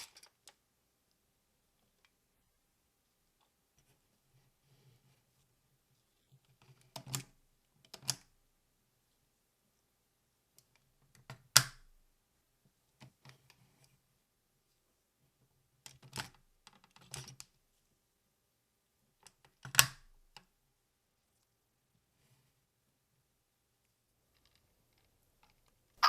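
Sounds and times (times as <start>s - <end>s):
plastic toy parts clicking: 19.2s - 20.1s.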